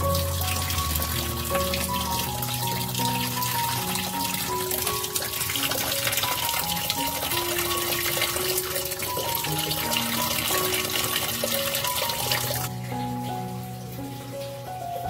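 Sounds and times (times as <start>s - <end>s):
water pouring into plastic tub: 0.0s - 14.7s
background music: 0.0s - 15.0s.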